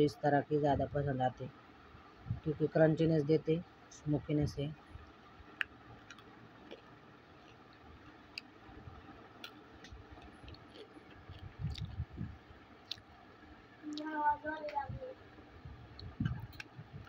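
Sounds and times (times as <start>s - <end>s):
low chewing thuds: 4.9s - 13.3s
sharp chewing crunches: 5.6s - 8.6s, 9.4s - 13.1s.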